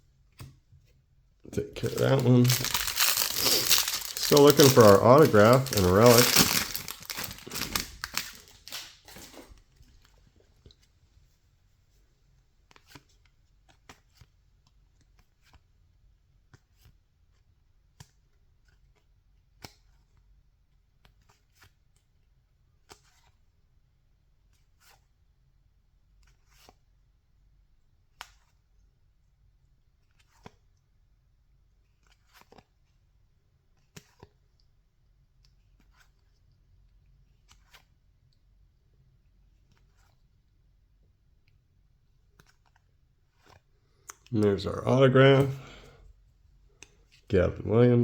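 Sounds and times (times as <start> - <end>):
pack wrapper crinkling: 1.5 - 9.5.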